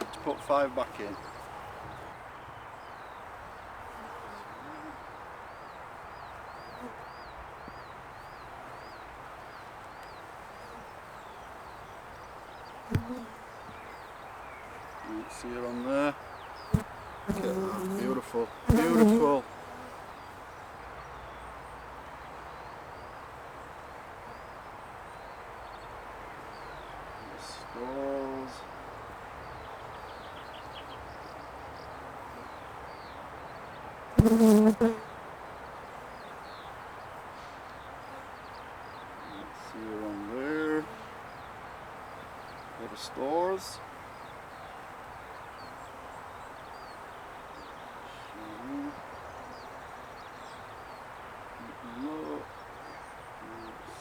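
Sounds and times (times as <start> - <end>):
honey bees buzzing: 12.8 - 14.1, 16.5 - 19.5, 34.2 - 35.1.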